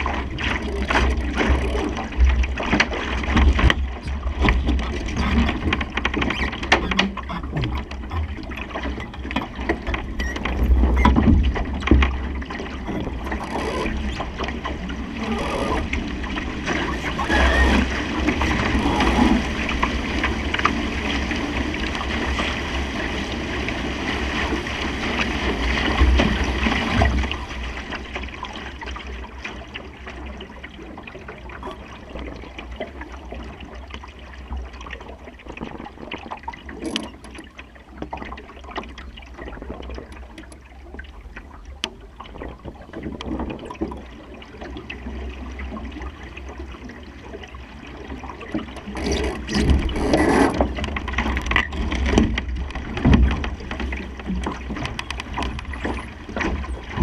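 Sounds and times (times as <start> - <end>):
water rushing along a hull: 0.0 - 57.0
clicks: 4.0 - 12.2, 12.8 - 14.5, 15.2 - 16.0.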